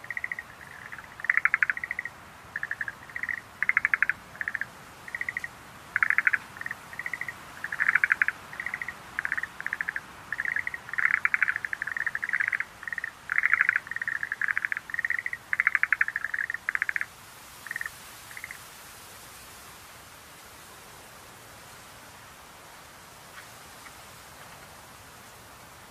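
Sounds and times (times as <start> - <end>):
tree frogs trilling: 0.0 - 18.6
steady hiss: 0.0 - 25.9.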